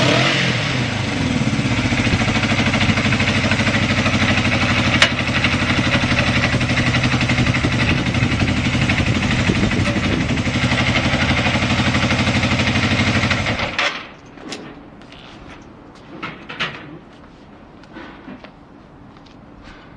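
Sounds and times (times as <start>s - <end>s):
motorcycle engine idling: 0.6s - 13.8s.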